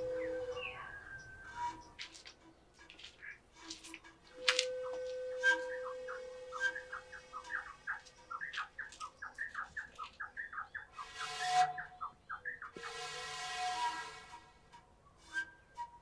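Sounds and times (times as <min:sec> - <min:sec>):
bird chirping rapidly: 0:05.7 - 0:12.8.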